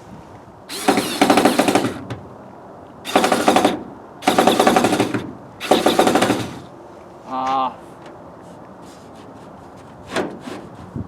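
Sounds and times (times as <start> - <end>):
power driver driving screws into metal: 0.7 - 2.1, 3.1 - 6.7.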